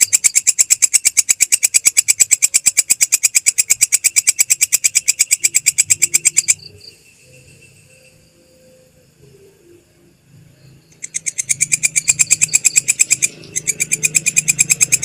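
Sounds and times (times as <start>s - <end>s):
katydid chirping clicks: 0.0s - 7.0s, 10.9s - 15.0s.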